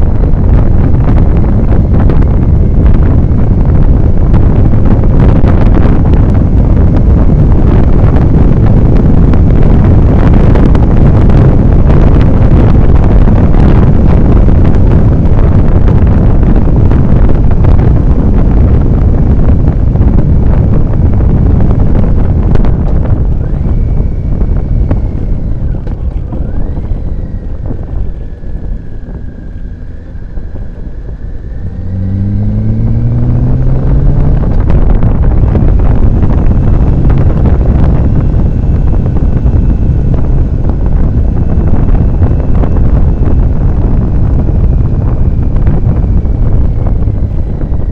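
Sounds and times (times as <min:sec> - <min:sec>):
motorcycle engine accelerating: 0:00.0 - 0:47.9
wind noise on microphone: 0:00.0 - 0:47.9.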